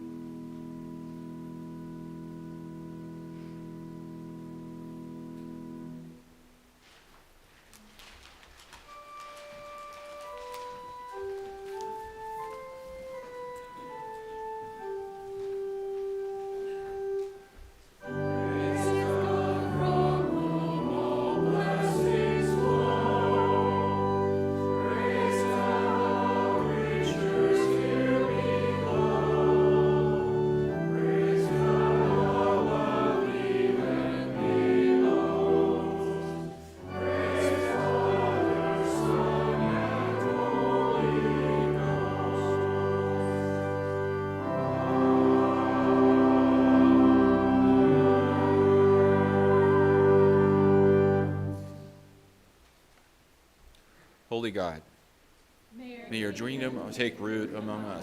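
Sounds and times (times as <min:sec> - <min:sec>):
organ playing: 0:00.0 - 0:06.5, 0:08.6 - 0:52.4, 0:56.1 - 0:58.0
group of voices singing: 0:18.4 - 0:43.6, 0:44.6 - 0:50.4.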